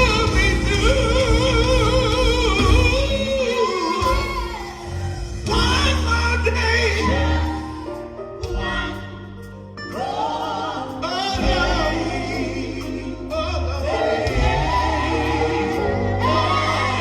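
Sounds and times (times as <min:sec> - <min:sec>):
gospel group singing with band: 0:00.0 - 0:17.0.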